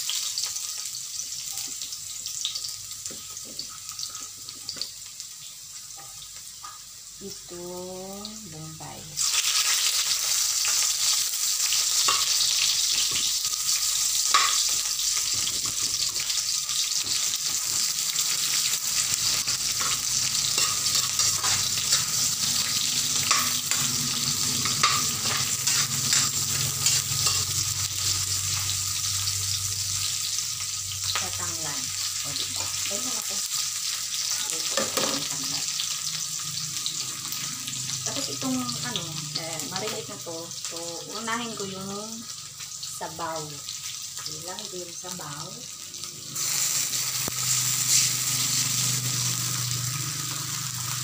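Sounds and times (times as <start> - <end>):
vegetables sizzling in hot oil: 0.0 - 51.0
metal ladle scraping a wok: 17.1 - 29.1, 46.3 - 50.9.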